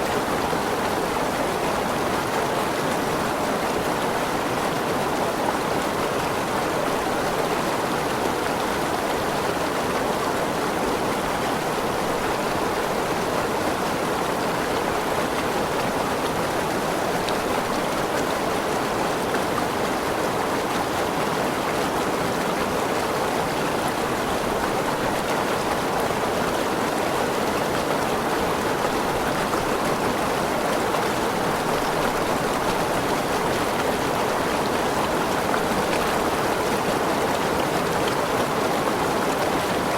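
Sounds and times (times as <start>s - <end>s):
waterfall rushing and splashing: 0.0s - 39.9s.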